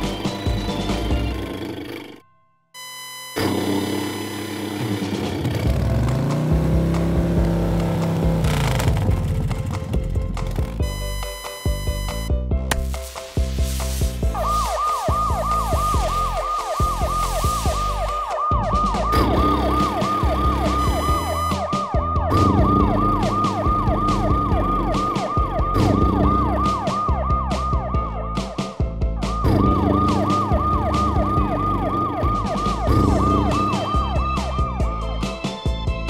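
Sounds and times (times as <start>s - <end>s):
siren sweeping up and down: 2.8s - 5.5s, 14.3s - 28.4s, 29.3s - 35.0s
background music with steady beat: 3.8s - 36.0s.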